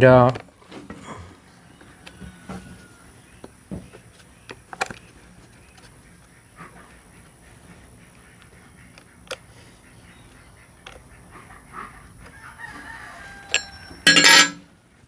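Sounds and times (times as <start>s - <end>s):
rooster crowing: 1.6s - 3.2s, 12.3s - 14.0s.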